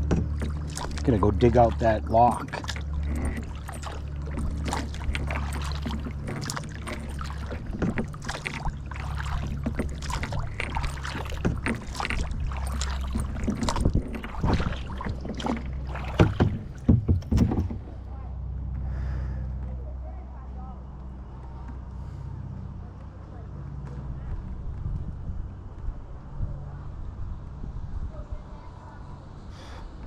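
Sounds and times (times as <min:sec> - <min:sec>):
paddle knocks against hull: 0:00.0 - 0:18.0
paddle splashes: 0:00.0 - 0:18.1
steady low rumble: 0:00.0 - 0:30.0.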